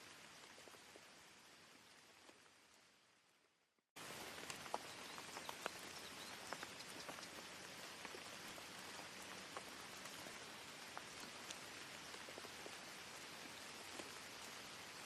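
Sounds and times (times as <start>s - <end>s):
rain hissing: 0.0s - 15.0s
raindrops ticking: 4.0s - 15.0s.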